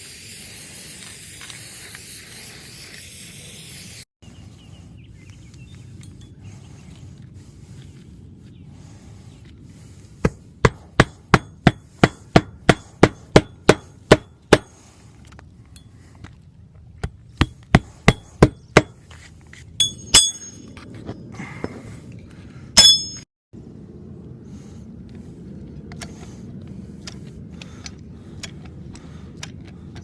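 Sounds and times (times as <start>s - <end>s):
sharp metallic clinks: 19.8s - 20.8s, 22.8s - 23.3s.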